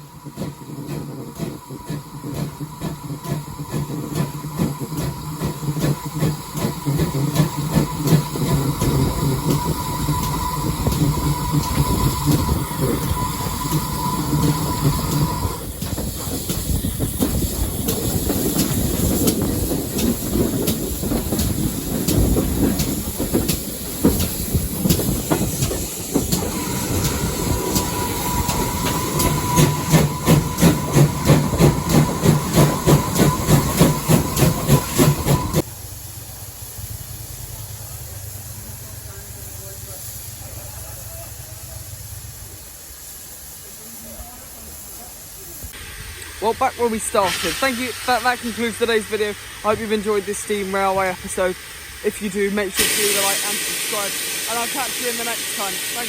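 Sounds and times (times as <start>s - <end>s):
train wheels clattering over track: 0.0s - 35.7s.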